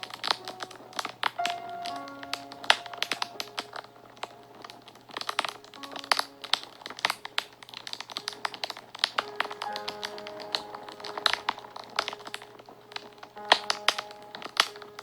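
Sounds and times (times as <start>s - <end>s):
soft background music: 0.0s - 15.0s
wood fire crackling: 0.0s - 15.0s.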